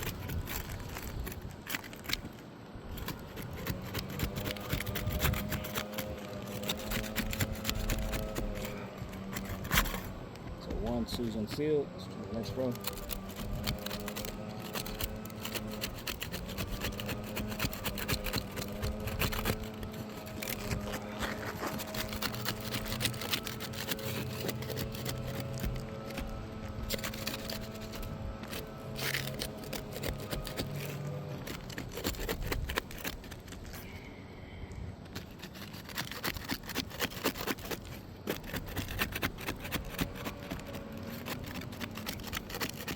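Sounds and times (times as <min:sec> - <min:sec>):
roof shingles scraping and crackling: 0:00.0 - 0:34.1, 0:35.0 - 0:42.9
steady low hum: 0:00.0 - 0:42.9.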